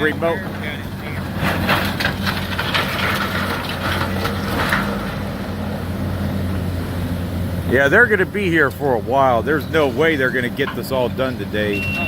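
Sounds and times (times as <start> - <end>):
wood and debris crunching: 0.0 - 5.6
excavator engine running: 0.0 - 12.0.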